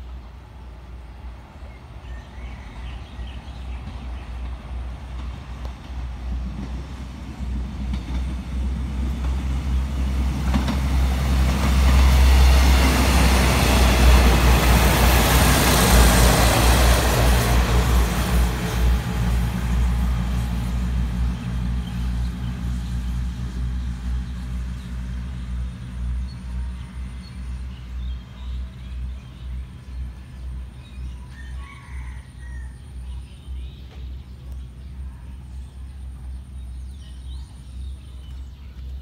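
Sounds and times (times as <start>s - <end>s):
diesel train engine rumble: 0.0s - 39.0s.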